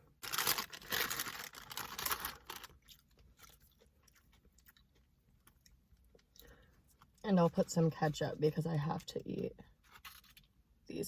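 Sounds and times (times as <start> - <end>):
paper wrapping rustling: 0.2 - 2.8
soft chewing with mouth clicks: 2.8 - 7.2.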